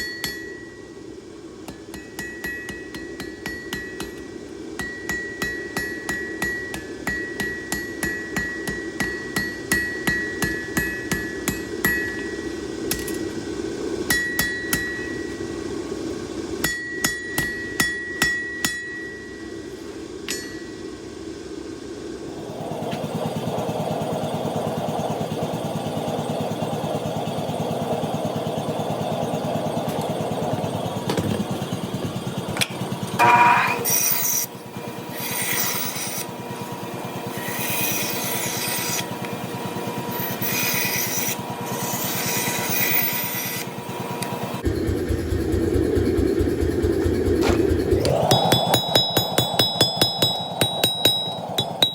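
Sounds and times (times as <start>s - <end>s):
metal being abraded: 33.2s - 34.5s, 48.0s - 51.9s
scraping strokes on metal: 33.2s - 36.4s, 37.2s - 39.3s, 40.0s - 43.7s
low rhythmic pulsing: 44.6s - 51.9s.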